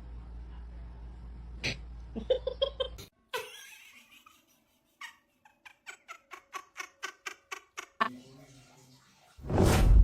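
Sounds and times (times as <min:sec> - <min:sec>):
person laughing: 0:02.1 - 0:08.0.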